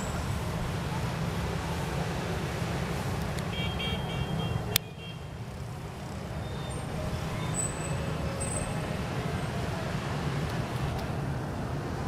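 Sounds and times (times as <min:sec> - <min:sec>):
distant street traffic rumble: 0:00.0 - 0:12.0
car horn short beeps: 0:03.5 - 0:05.3.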